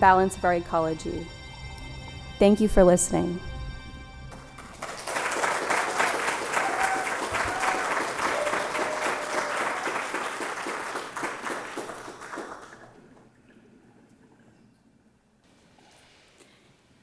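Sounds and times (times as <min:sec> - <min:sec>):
audience applauding: 0:04.4 - 0:13.3
whistles and cheers: 0:04.9 - 0:12.1.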